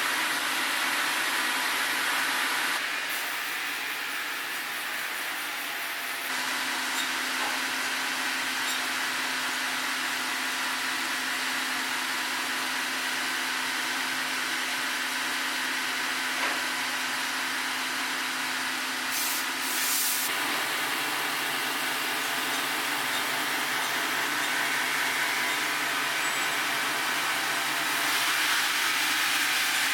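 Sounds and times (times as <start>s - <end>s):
sawmill cutting log: 17.7s - 29.9s
machine hum: 20.3s - 29.9s.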